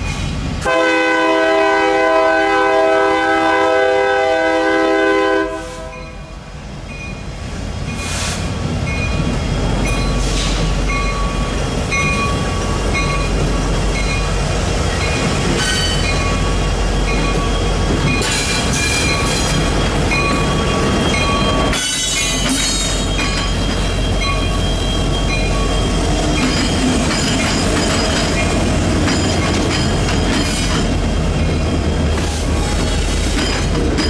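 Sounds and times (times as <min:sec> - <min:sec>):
train cars rumbling on rails: 0:00.0 - 0:34.0
wheel squeal: 0:15.6 - 0:28.5.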